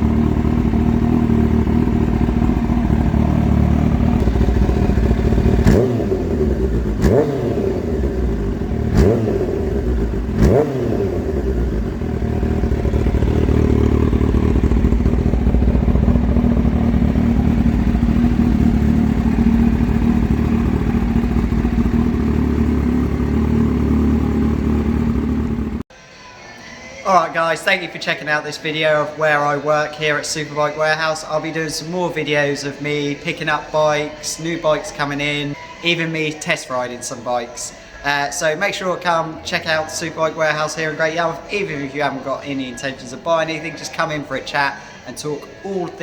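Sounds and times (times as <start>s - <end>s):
motorcycle engine idling: 0.0s - 25.9s
motorcycle engine revving: 0.0s - 25.9s.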